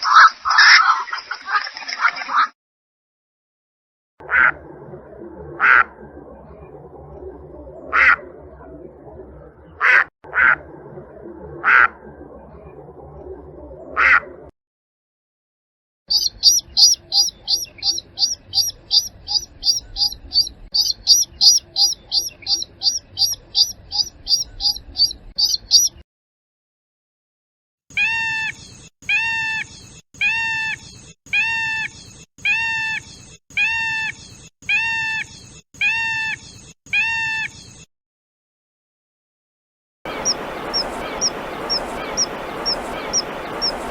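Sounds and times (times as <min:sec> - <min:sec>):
sharp waterbird calls: 0:07.9 - 0:08.2, 0:16.1 - 0:26.0, 0:40.1 - 0:43.9
high piping bird notes: 0:16.1 - 0:26.0, 0:40.1 - 0:43.9
lower arched bird calls: 0:16.1 - 0:26.0, 0:40.1 - 0:43.9
noisy background: 0:40.1 - 0:43.9.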